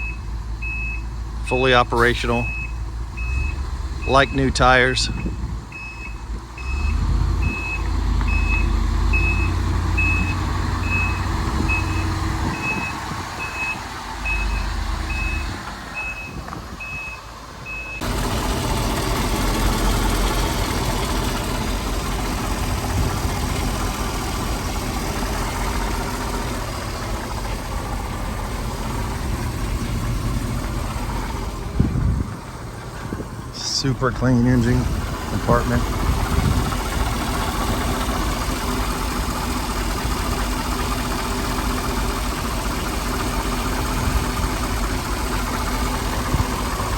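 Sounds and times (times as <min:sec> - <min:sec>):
backup alarm beeping: 0:00.0 - 0:18.0
truck engine idling: 0:00.0 - 0:46.9.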